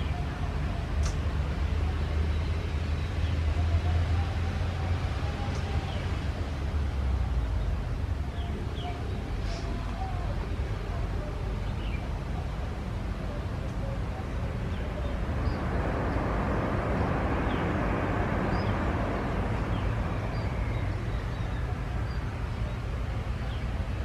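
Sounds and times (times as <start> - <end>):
steady low rumble: 0.0 - 24.0
jet airliner engine noise: 12.6 - 24.0.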